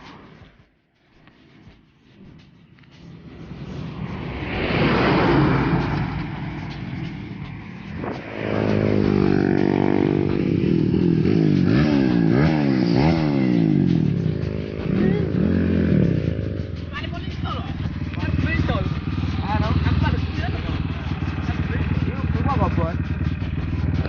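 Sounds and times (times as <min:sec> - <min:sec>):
rushing noise: 0:02.8 - 0:20.1
motorcycle engine revving: 0:02.8 - 0:24.0.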